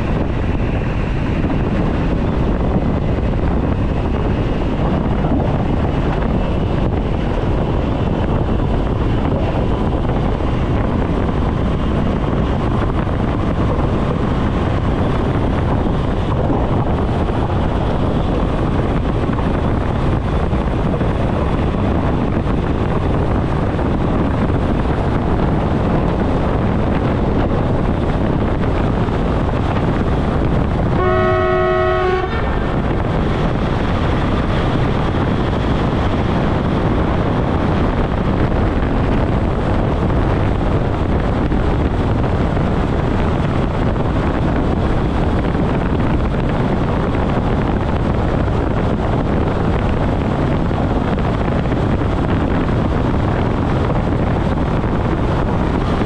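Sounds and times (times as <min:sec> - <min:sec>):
rushing air: 0:00.0 - 0:56.0
wheels rumbling on rail: 0:00.0 - 0:56.0
train horn: 0:30.9 - 0:32.8.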